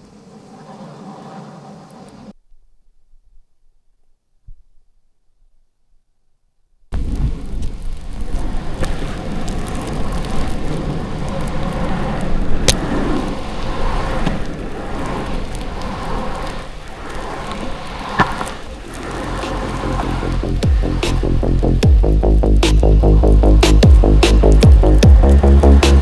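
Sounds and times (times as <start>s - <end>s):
longboard rolling over pavement: 0.0s - 2.3s, 7.0s - 26.0s
sharp wheel clicks on cracks: 7.6s - 13.4s.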